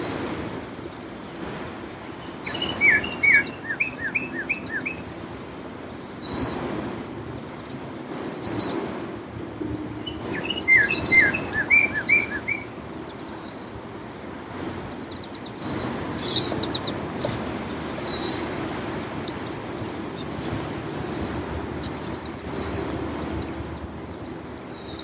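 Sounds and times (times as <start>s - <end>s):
songbirds chirping: 10.0s - 25.0s
calm lake waves: 10.2s - 25.0s.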